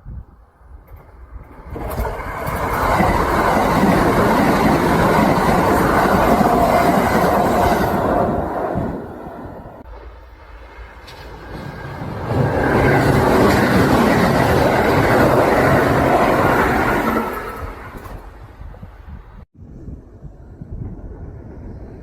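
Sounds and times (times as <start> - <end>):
electric train passing: 0.5 - 19.4, 20.2 - 22.0
wheels clattering over rail joints: 0.7 - 9.1, 9.8 - 18.8.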